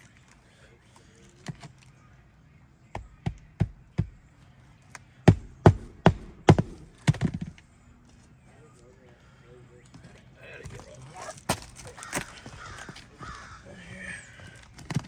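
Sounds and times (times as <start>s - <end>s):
hammer striking roofing nails: 2.9s - 4.2s, 5.2s - 7.6s.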